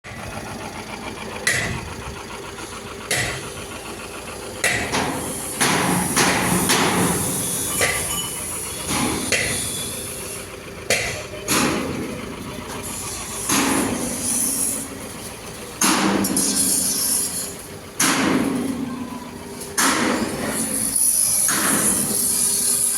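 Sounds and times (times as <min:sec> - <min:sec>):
steady background hum: 0:01.0 - 0:22.9
hammer striking sheet metal: 0:04.6 - 0:08.2, 0:08.9 - 0:09.7, 0:13.5 - 0:14.4, 0:15.8 - 0:16.7.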